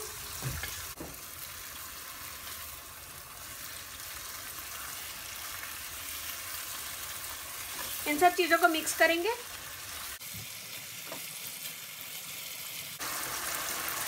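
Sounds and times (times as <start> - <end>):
chicken sizzling in a pan: 0.0 - 14.0.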